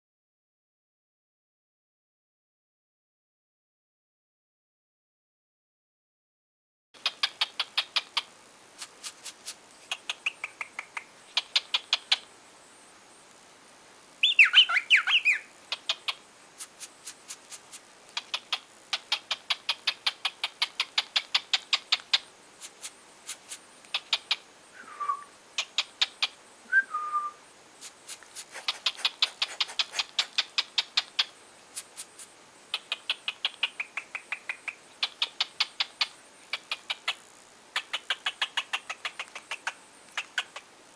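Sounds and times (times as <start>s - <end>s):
cockatiel chirping: 7.0s - 12.3s, 14.2s - 16.7s, 18.2s - 22.3s, 23.9s - 24.4s, 25.6s - 26.4s, 28.6s - 37.2s, 37.8s - 40.6s.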